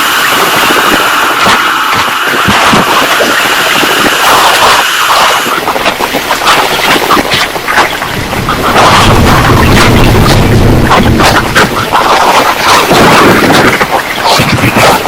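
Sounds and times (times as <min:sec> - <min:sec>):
torrential rain pouring: 0:00.0 - 0:15.0
wind: 0:00.0 - 0:15.0
low rumble of thunder: 0:08.1 - 0:13.6.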